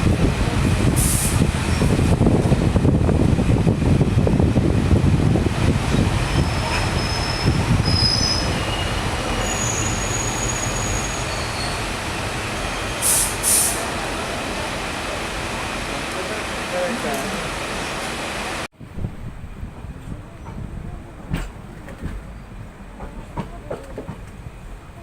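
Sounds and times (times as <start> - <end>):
train wheels rumbling on rails: 0.0 - 25.0
high-pitched wheel squeals: 6.3 - 11.9.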